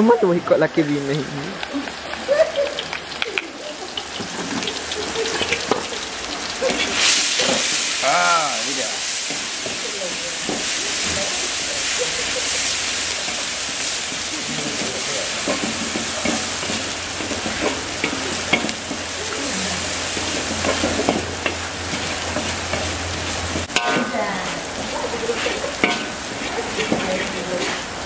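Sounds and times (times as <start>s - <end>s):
paste sizzling in oil: 1.2s - 28.0s
metal spoon scraping a wok: 6.6s - 8.0s, 9.2s - 28.0s.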